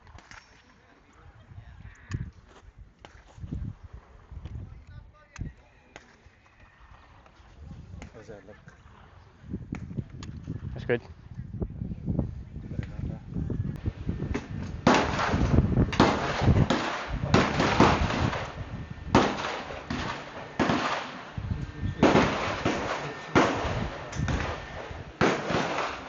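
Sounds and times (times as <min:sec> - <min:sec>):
gunshots: 0:14.3 - 0:26.0.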